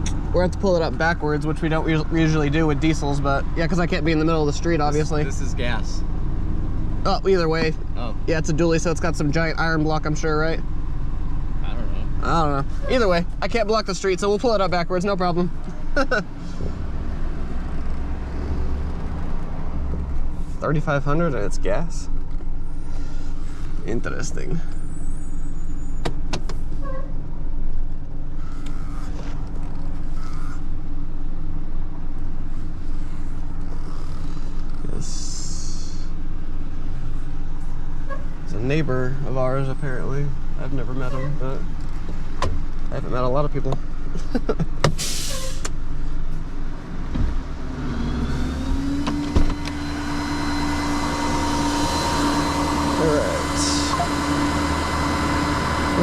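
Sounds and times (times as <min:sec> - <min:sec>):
truck engine humming: 0:00.0 - 0:56.0
rising whine: 0:47.7 - 0:56.0.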